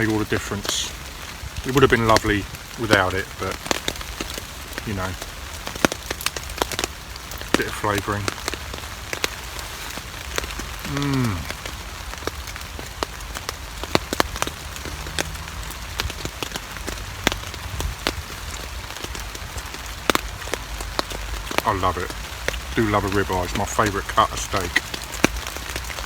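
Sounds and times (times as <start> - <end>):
heavy rain on a tarp: 0.0 - 26.0
man humming: 10.8 - 11.7.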